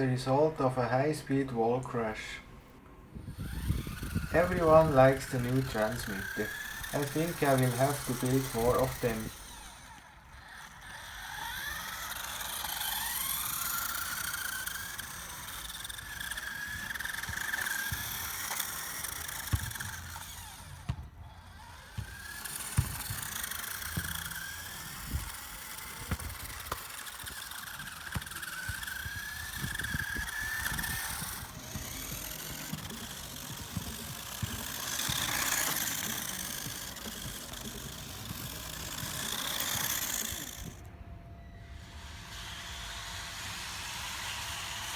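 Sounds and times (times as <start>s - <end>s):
small electric motors whining: 0.0s - 44.9s.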